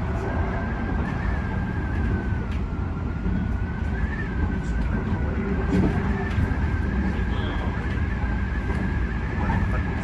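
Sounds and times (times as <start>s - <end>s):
high wind whistle: 0.0s - 4.8s
train wheels rumbling on rail: 0.0s - 10.0s.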